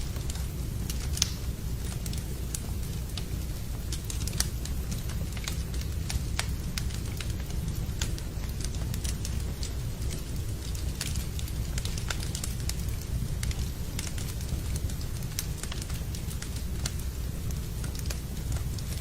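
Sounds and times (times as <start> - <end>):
rain rumbling: 0.0 - 19.0
wood fire crackling and popping: 0.0 - 19.0.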